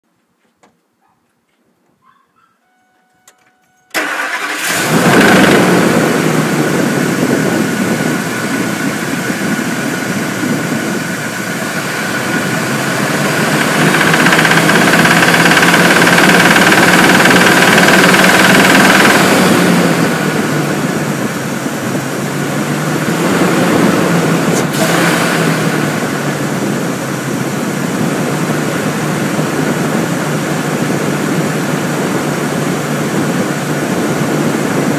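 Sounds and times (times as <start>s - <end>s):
truck engine starting: 3.3s - 34.9s
engine revving: 4.0s - 21.4s, 22.3s - 26.7s
engine knocking: 12.1s - 20.2s.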